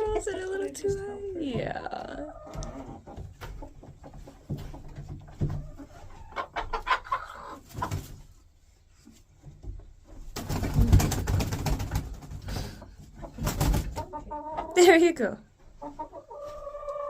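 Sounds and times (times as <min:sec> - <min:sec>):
rustling and scrabbling: 0:00.0 - 0:06.8.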